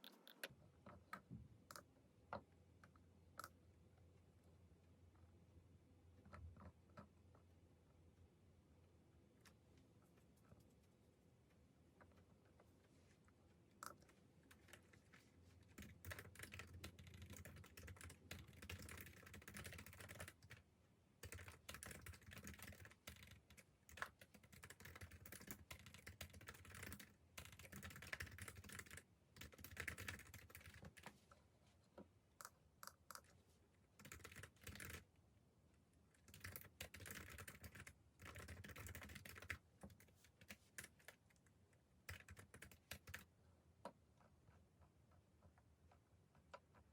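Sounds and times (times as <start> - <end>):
keyboard typing: 13.8 - 20.6, 21.2 - 31.1, 34.0 - 35.1, 36.2 - 41.4, 42.0 - 43.3.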